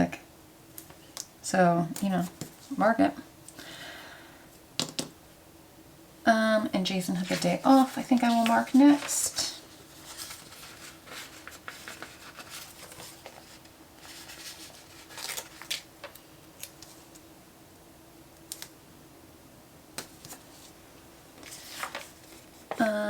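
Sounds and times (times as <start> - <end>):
faint steady hum: 0.0 - 23.0
stickers peeling and rustling: 7.2 - 9.4, 10.0 - 17.2.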